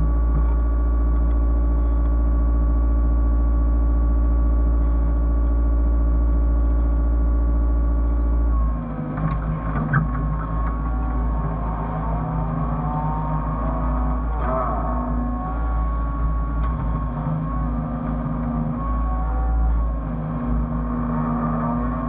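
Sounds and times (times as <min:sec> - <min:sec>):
excavator engine and hydraulics: 0:00.0 - 0:22.0
knocks and squeaks: 0:08.6 - 0:22.0.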